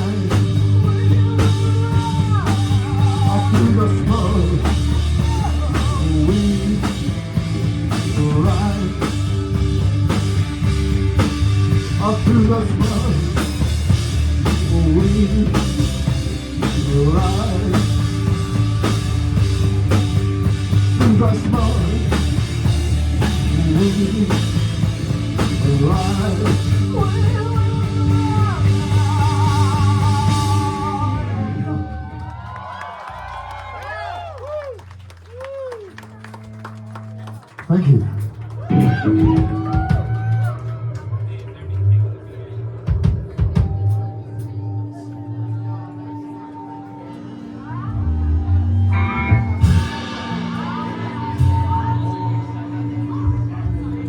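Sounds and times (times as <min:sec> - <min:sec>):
person singing: 0:00.0 - 0:32.1, 0:43.6 - 0:54.0
rock band playing: 0:00.0 - 0:54.0.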